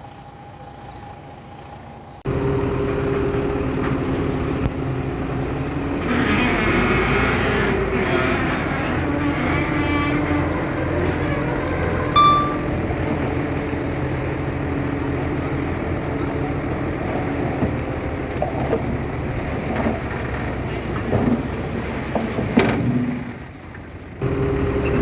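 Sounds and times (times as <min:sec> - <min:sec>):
diesel machinery running: 0:01.6 - 0:25.0
metal clank: 0:12.0 - 0:12.8
high beep: 0:12.2 - 0:12.7.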